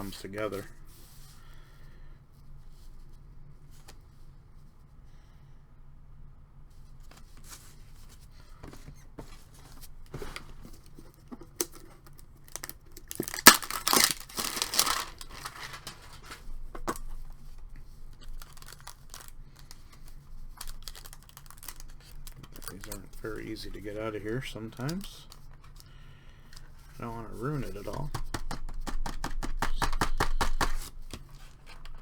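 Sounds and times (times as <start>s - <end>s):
wrapper crinkling: 10.0s - 17.4s, 18.0s - 25.8s
card pack wrapper tearing: 11.4s - 17.1s, 18.2s - 25.8s.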